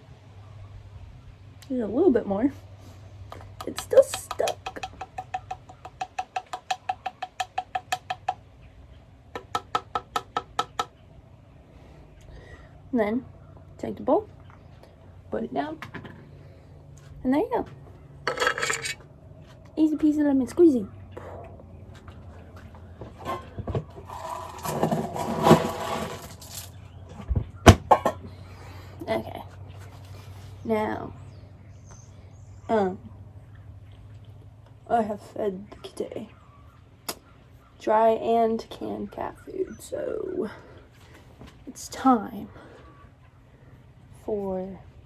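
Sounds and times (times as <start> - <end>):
can tapped against bowl: 3.4 - 8.4, 9.4 - 10.9
sharp knocks: 3.4 - 8.4, 9.4 - 10.9
scraping and rustling: 22.0 - 28.2.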